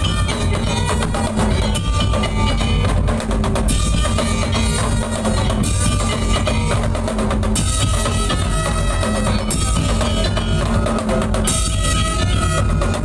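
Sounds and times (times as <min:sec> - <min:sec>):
bass drum beat: 0:00.0 - 0:13.0
percussion ensemble: 0:00.0 - 0:13.0.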